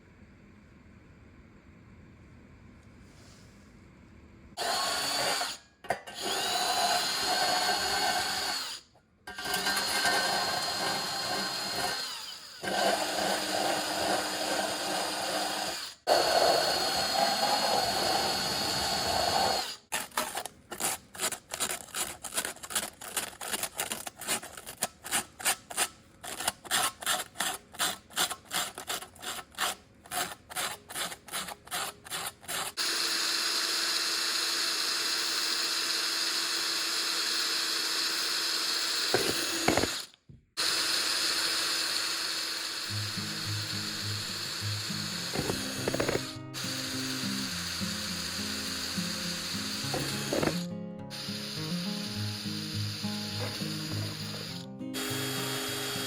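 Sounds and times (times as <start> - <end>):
power drill whining: 4.6 - 24.0, 32.1 - 56.0.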